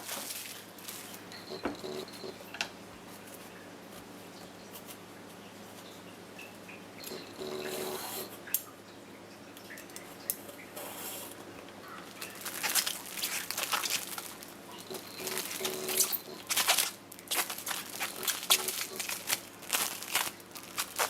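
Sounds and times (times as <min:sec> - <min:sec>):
clicks taps and rustling: 0:00.0 - 0:07.7.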